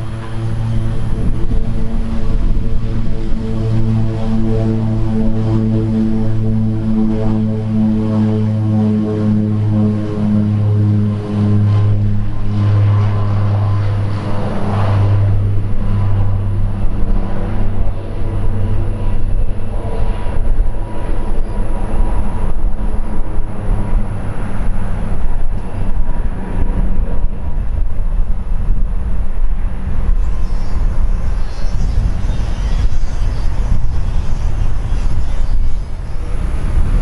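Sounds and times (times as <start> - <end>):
airplane engines rumbling: 0.0 - 37.0
faint steady whine: 0.0 - 37.0.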